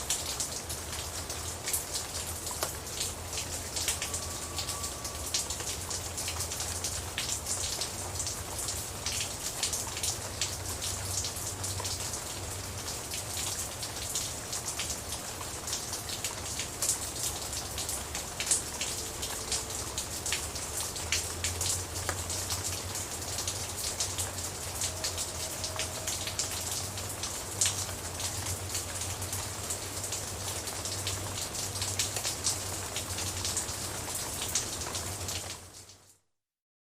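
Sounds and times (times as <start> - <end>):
steady rain: 0.0 - 36.2.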